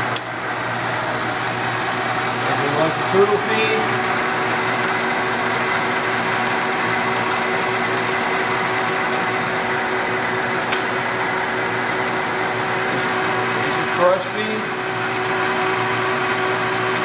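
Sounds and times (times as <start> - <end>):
lathe motor and gearing hum: 0.0 - 17.0.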